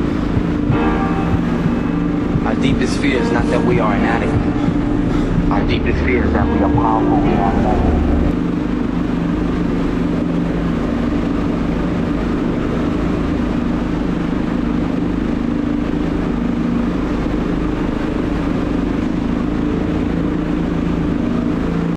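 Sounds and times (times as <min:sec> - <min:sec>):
motorcycle engine running steadily: 0:00.0 - 0:21.9.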